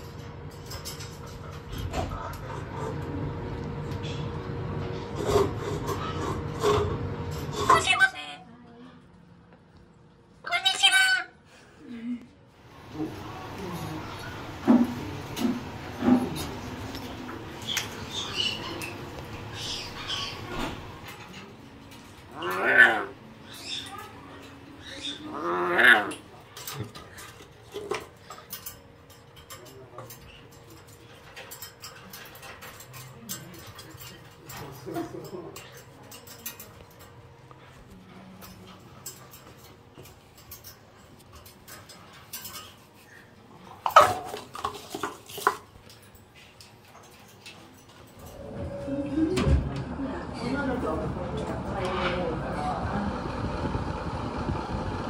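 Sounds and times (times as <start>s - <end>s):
light clicks and clatter: 0.0s - 4.1s, 26.4s - 48.4s
birds chirping: 12.6s - 27.9s
bird calling: 17.5s - 21.2s.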